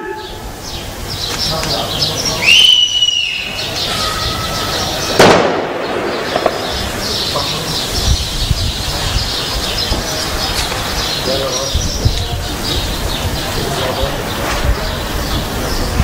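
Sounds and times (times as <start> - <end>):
birds chirping: 0.0 - 16.0
loud gunshot echoing: 5.1 - 7.4.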